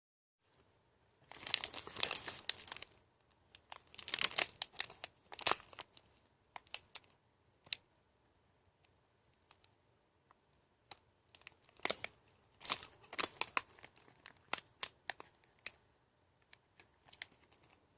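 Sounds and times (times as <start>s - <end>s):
wrapper crinkling and tearing: 1.2s - 7.1s, 11.4s - 15.8s.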